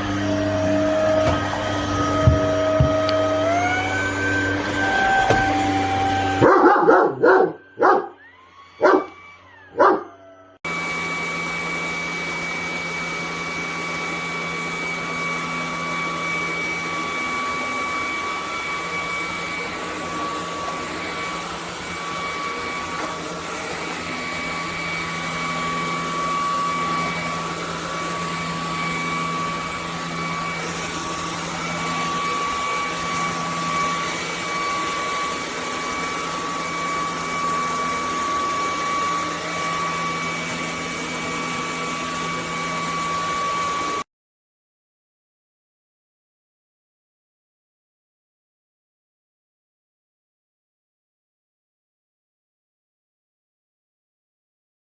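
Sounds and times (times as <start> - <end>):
stick vacuum cleaner motor whine: 0.0 - 44.1
dog barking: 6.4 - 8.2, 8.8 - 10.1.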